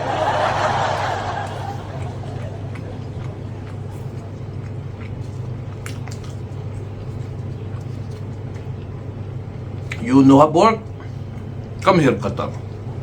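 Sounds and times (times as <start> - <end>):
wet mouth clicks: 0.0 - 10.1
chewing food: 0.0 - 13.0
steady low hum: 0.0 - 13.0.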